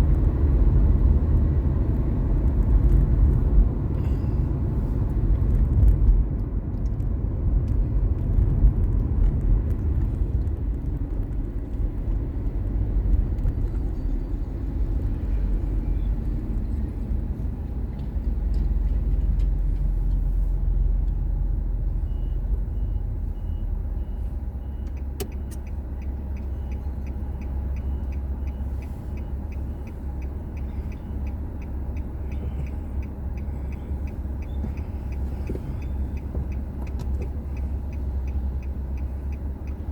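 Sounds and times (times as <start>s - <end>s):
car road and engine rumble: 0.0s - 39.9s
faint regular ticking: 24.8s - 39.9s.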